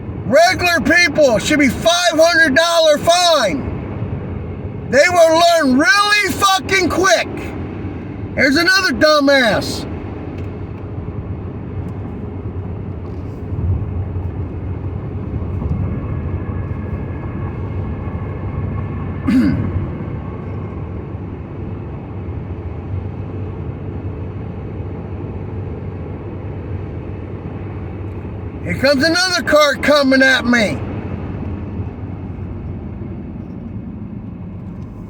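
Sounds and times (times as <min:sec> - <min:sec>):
car driving on wet road: 0:05.3 - 0:21.2, 0:26.0 - 0:35.0.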